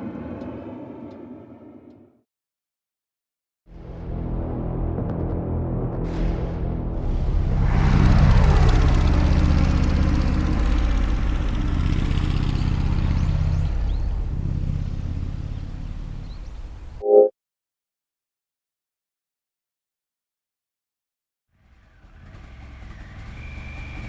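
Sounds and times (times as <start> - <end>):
motorcycle exhaust running: 7.0 - 17.0, 21.6 - 24.0.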